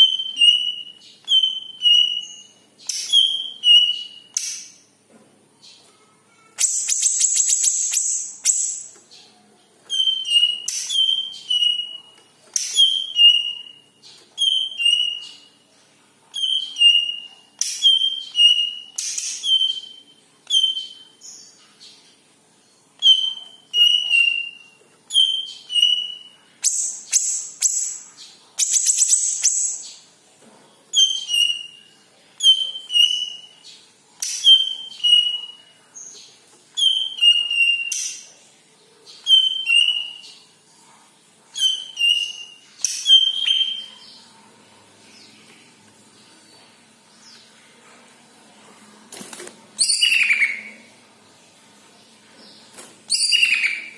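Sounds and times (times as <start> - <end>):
bird singing with falling whistle: 49.8 - 50.8, 53.1 - 53.9.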